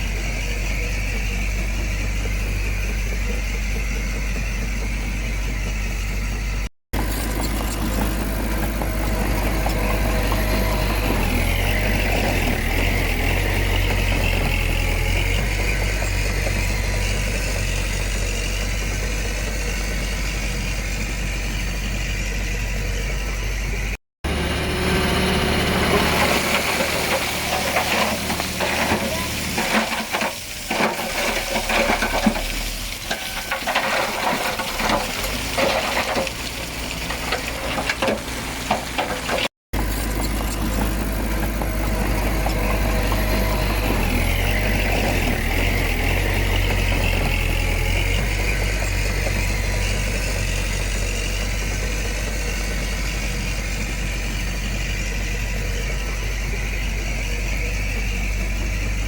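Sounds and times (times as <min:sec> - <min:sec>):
heavy machine engine running: 0:00.0 - 0:59.0
stones and gravel clattering: 0:07.0 - 0:14.4, 0:25.8 - 0:51.6.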